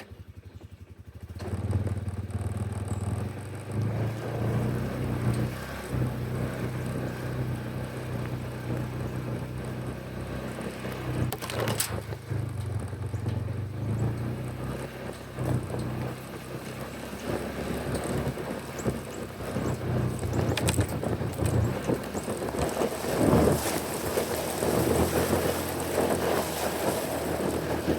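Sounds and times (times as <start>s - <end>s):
vehicle engine running: 0.0s - 27.9s.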